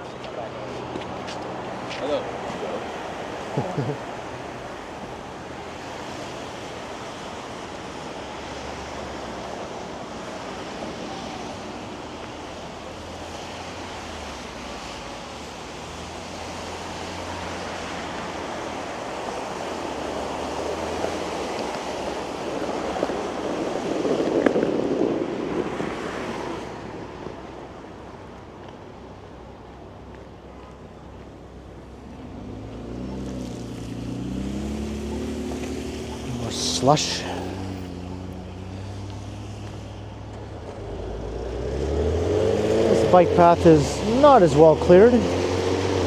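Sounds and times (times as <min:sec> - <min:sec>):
city street traffic hiss: 0:00.0 - 0:46.0
vehicle passing close: 0:31.8 - 0:46.0.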